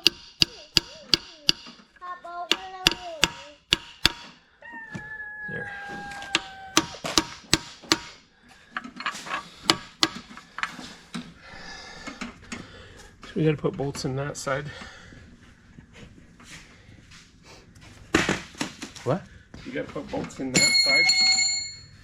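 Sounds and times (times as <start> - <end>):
sharp knocks: 0.0 - 1.8, 2.5 - 4.4, 6.2 - 8.2, 9.7 - 10.3.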